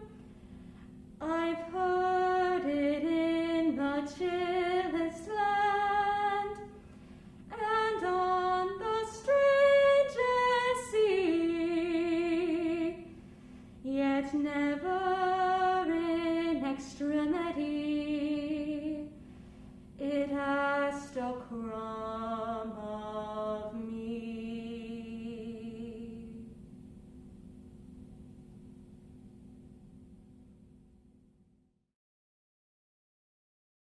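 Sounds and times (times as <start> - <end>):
woman singing classical: 0.0 - 0.2, 1.2 - 6.9, 7.5 - 13.2, 13.8 - 19.2, 20.0 - 26.6.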